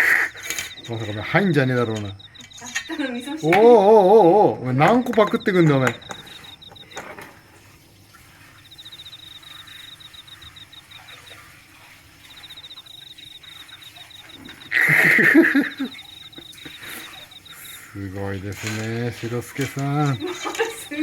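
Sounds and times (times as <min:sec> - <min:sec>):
cricket chirping: 0:00.0 - 0:21.0
faint splashing and clicking: 0:04.8 - 0:21.0.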